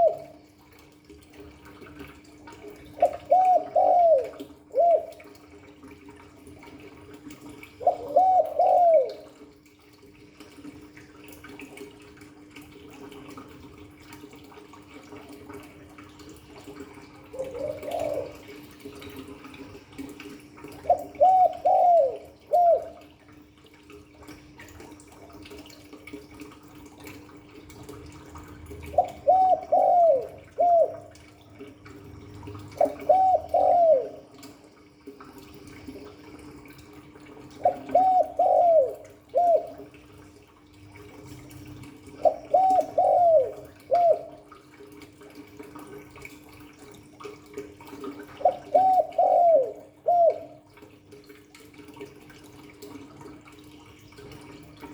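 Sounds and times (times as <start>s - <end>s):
dove cooing: 0.0s - 0.5s, 2.8s - 5.7s, 7.6s - 9.4s, 17.2s - 19.1s, 20.6s - 23.2s, 28.8s - 31.4s, 32.6s - 34.6s, 37.4s - 39.9s, 42.1s - 44.5s, 48.3s - 50.7s
faint steady hum: 0.0s - 54.9s.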